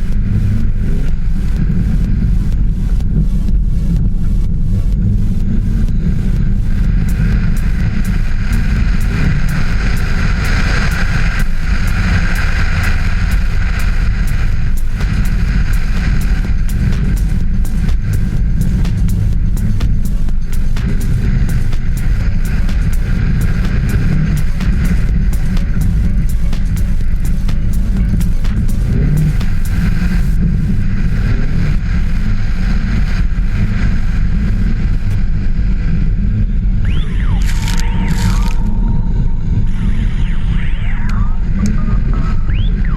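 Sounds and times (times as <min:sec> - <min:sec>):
rally car engine rumbling: 0:00.0 - 0:40.4.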